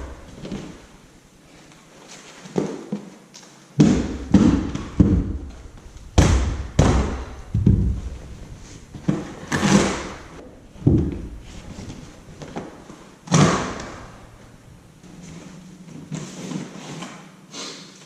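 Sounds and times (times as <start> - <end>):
heavy thumps and knocks: 3.8 - 14.7.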